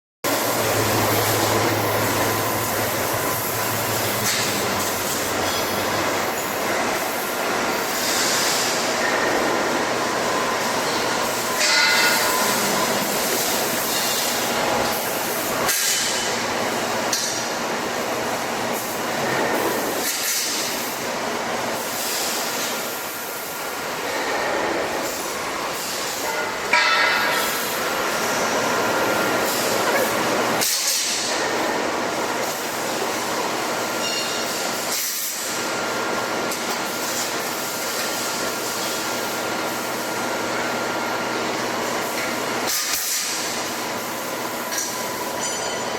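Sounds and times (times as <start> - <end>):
industrial machinery din: 0.3 - 33.0
metallic clinks and squeals: 34.0 - 34.6, 45.4 - 45.9.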